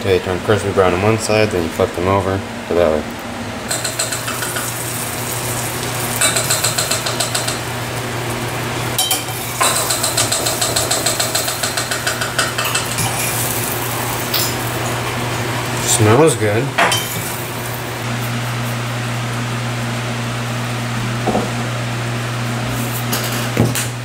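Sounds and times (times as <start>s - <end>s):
fish frying in oil: 3.7s - 16.1s.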